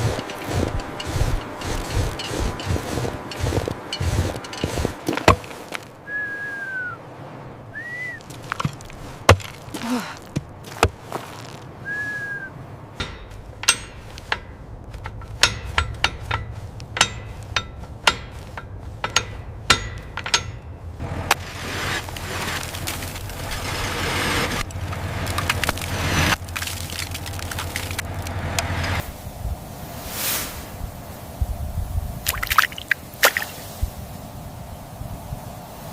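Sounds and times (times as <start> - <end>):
arching whistle-like tones: 6.0 - 7.0, 7.7 - 8.3, 11.8 - 12.6
sharp knocks and cracks: 8.2 - 11.6, 13.0 - 20.7, 21.3 - 29.0.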